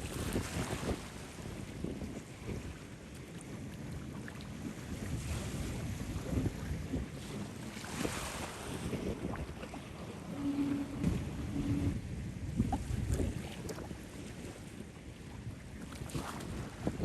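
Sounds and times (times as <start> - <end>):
wind buffeting microphone: 0.0 - 17.0
brief low hum: 10.3 - 12.9.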